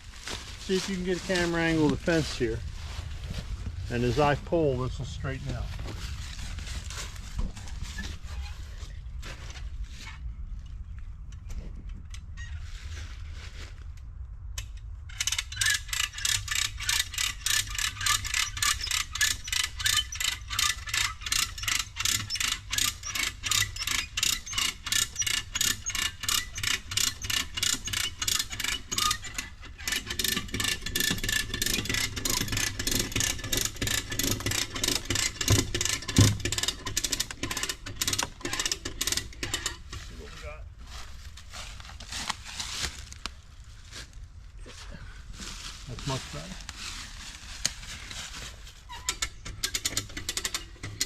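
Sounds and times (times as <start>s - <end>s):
ratchet pawl clicking: 15.1s - 39.9s, 49.1s - 51.0s.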